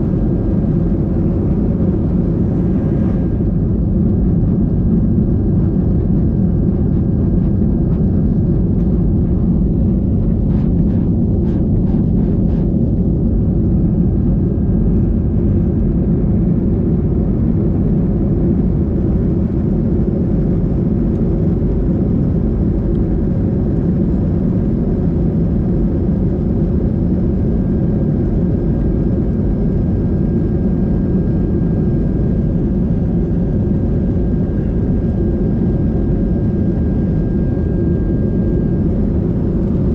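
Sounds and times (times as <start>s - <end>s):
vehicle cabin rumble: 38.9s - 39.9s.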